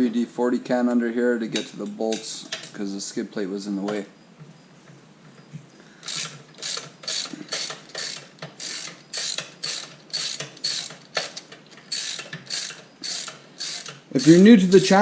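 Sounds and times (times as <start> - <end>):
ratchet wrench clicking: 6.0 - 15.0.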